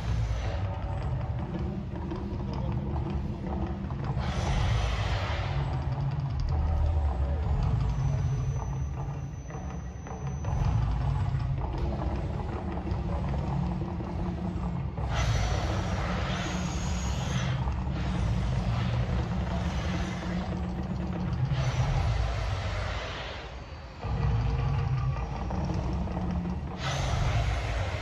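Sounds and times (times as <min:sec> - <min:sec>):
deep steady rumble: 0:00.0 - 0:28.0
hissing rushes: 0:04.1 - 0:06.0, 0:15.0 - 0:24.7, 0:25.8 - 0:28.0.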